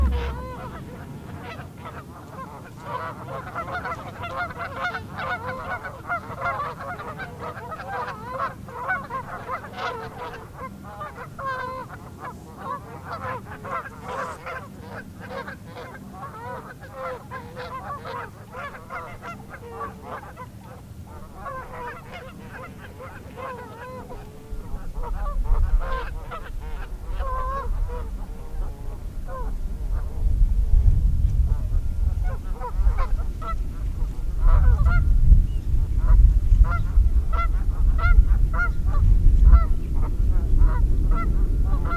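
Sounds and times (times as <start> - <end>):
low rumble: 0.0 - 1.4, 29.2 - 41.9.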